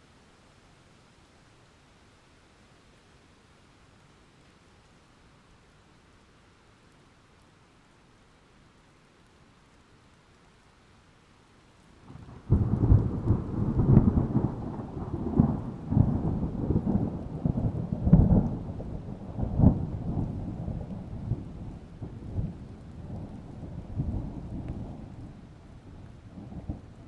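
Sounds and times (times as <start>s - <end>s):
rain: 0.0s - 27.0s
thunder clap and rumbles: 12.4s - 25.2s.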